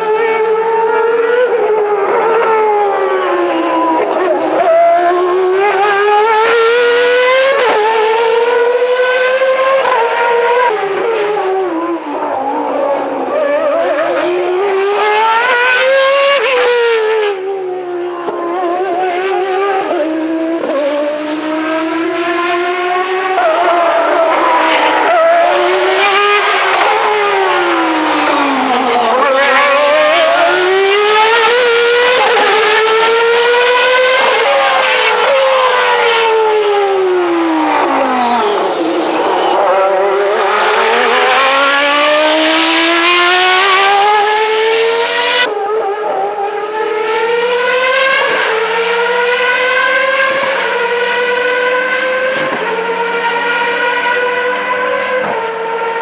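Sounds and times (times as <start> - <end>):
racing car engine revving: 0.0 - 56.0.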